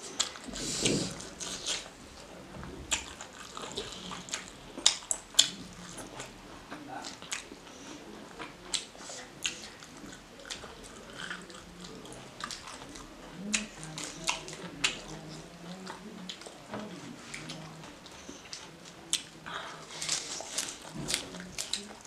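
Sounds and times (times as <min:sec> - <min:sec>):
wet chewing and mouth smacks: 0:00.0 - 0:02.0, 0:02.7 - 0:22.0
crunchy lettuce bites: 0:18.5 - 0:22.0.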